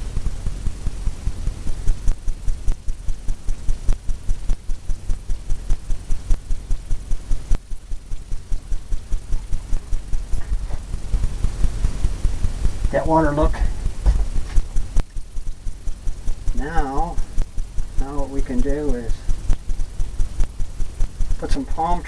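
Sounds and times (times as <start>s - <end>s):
brush tapping on canvas: 9.4s - 15.2s.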